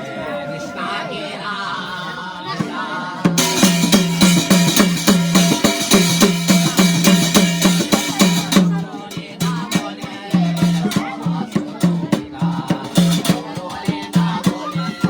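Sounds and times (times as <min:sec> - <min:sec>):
fast deep drumming: 0:03.3 - 0:15.0
jingling percussion: 0:03.3 - 0:15.0.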